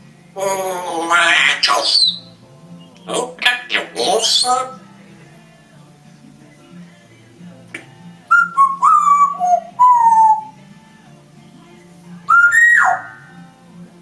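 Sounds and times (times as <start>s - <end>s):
parrot whistling: 0.4s - 4.9s, 8.3s - 10.6s, 12.2s - 13.4s.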